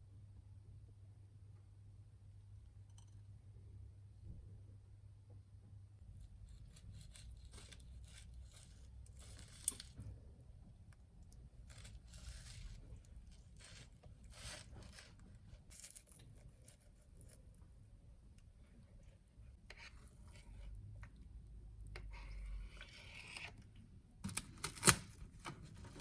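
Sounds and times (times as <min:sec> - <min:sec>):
utensils scraping and rustling: 0:06.5 - 0:10.1, 0:11.7 - 0:17.6.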